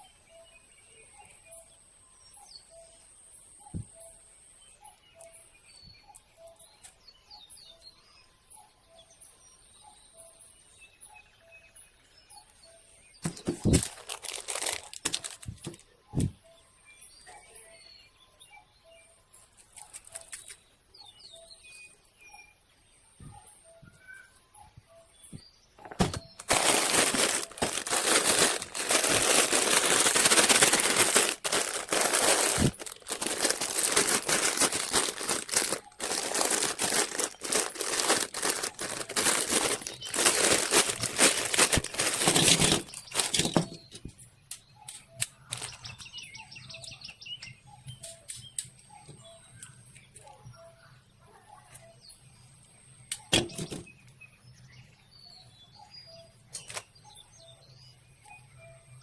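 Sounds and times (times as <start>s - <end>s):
faint bird chirps: 0.0s - 14.8s, 16.1s - 26.4s, 42.6s - 59.0s
loud crackling rustling: 13.3s - 15.7s, 26.0s - 43.6s.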